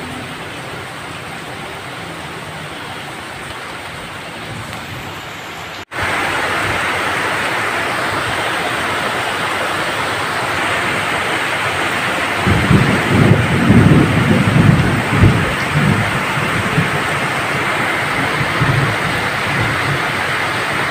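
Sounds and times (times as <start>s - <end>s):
rain hissing: 0.0s - 20.9s
low rumble of thunder: 12.3s - 20.9s.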